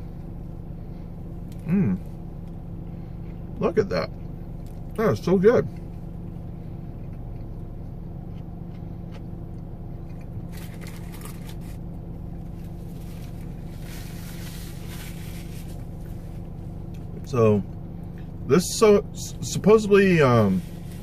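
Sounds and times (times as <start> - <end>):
car engine idling: 0.0 - 21.0
paper napkin rustling: 12.6 - 16.3.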